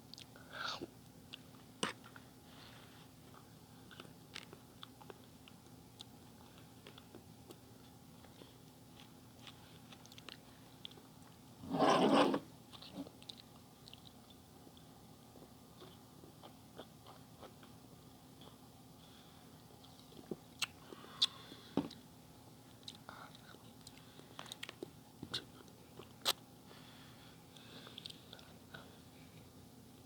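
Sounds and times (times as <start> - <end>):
chewing and mouth clicks: 3.3 - 11.4, 12.7 - 17.8, 19.8 - 22.0, 22.8 - 26.4.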